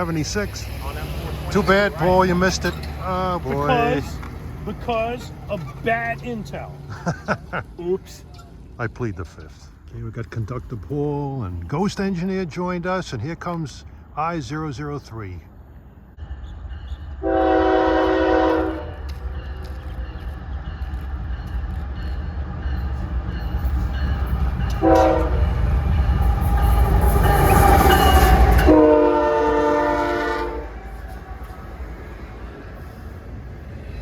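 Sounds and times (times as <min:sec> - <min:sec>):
diesel engines and wheels rumbling: 0:00.0 - 0:34.0
train horn: 0:17.2 - 0:19.2, 0:24.7 - 0:25.6, 0:26.5 - 0:31.5.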